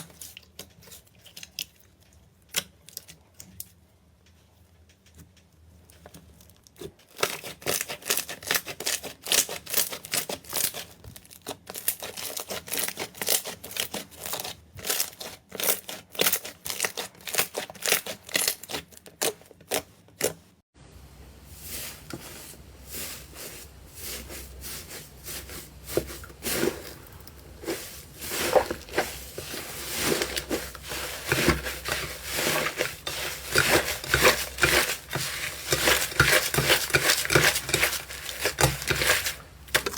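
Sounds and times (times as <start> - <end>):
crunchy crinkling slime: 5.9 - 20.3, 22.8 - 39.9.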